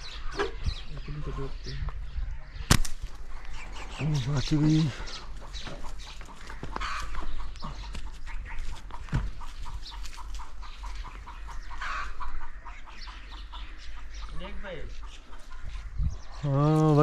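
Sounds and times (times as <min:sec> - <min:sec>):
birds calling rapidly: 0:00.0 - 0:17.0.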